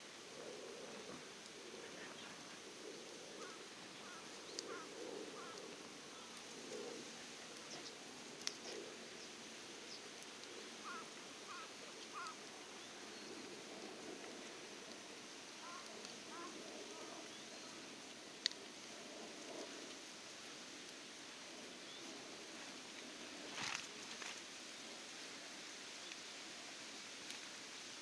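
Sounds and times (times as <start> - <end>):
campfire crackling and popping: 1.0 - 28.0
small birds chirping: 3.4 - 6.8, 7.6 - 10.1, 10.8 - 13.5, 15.6 - 17.9.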